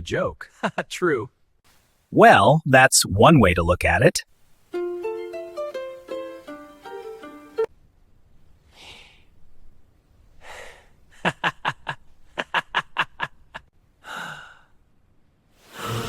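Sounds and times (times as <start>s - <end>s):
person gasping and breathing: 10.4s - 11.0s, 14.0s - 14.7s.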